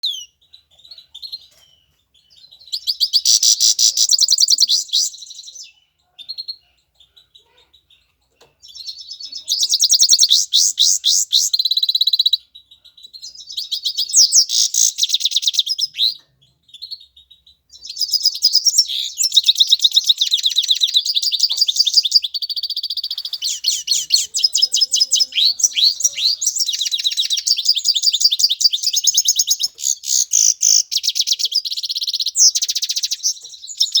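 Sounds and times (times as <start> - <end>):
goldfinch twittering song: 13.1 - 34.0.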